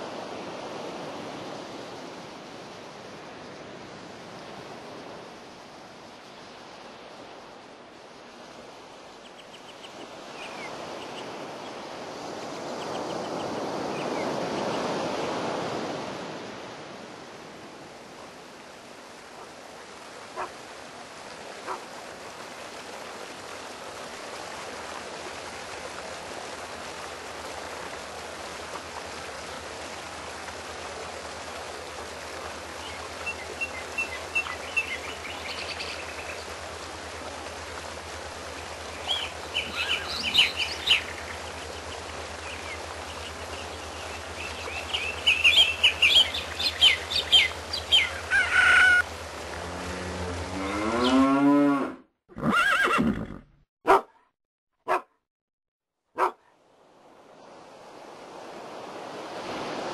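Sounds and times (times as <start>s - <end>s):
birds chirping: 38.7s - 49.0s
fowl-like calls: 48.0s - 49.1s.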